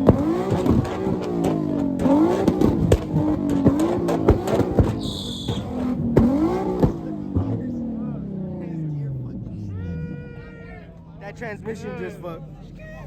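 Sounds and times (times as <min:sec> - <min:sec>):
exhaust pops and bangs: 0:00.0 - 0:08.1
car engine revving against limiter: 0:00.0 - 0:10.2.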